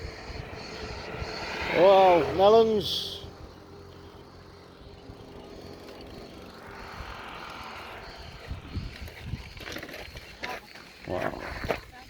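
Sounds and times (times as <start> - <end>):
wind noise: 0.0 - 2.3, 5.0 - 12.0
vehicle road hum: 0.0 - 12.0.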